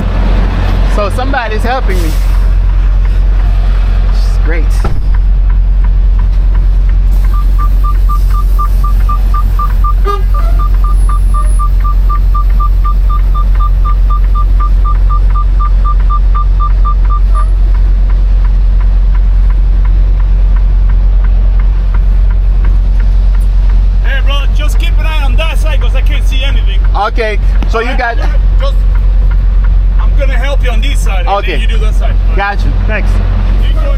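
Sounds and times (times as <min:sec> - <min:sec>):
truck diesel engine rumbling: 0:00.0 - 0:33.9
rapid electronic beeps: 0:07.2 - 0:17.6.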